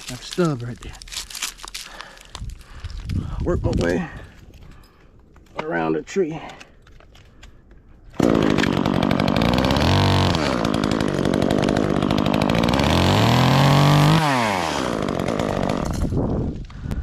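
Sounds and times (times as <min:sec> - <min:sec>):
chainsaw cutting wood: 0:08.1 - 0:16.4.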